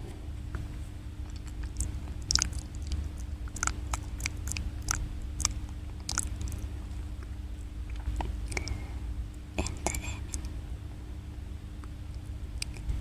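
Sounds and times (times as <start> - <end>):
wet mouth clicks and smacks: 1.3 - 7.3, 7.9 - 8.8, 12.6 - 13.0.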